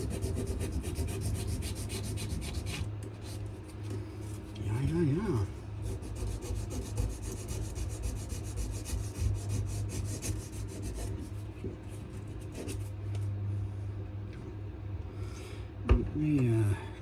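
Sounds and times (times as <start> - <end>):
sanding wood rasping: 0.0 - 3.4, 5.8 - 11.4.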